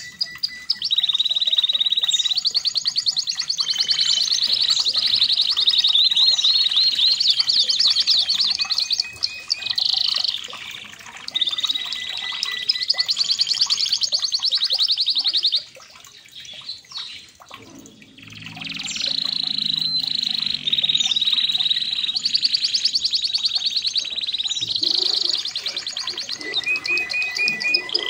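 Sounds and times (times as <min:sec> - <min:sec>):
canary singing rolling trills: 0:00.0 - 0:15.8, 0:16.5 - 0:28.0.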